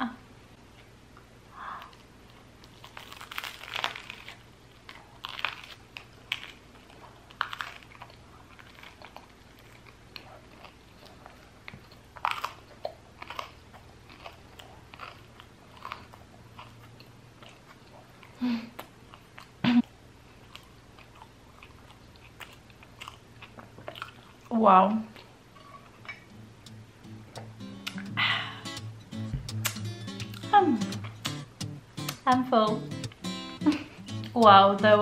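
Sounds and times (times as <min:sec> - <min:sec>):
biting crusty bread: 0:01.9 - 0:24.5
low hum: 0:26.3 - 0:35.0.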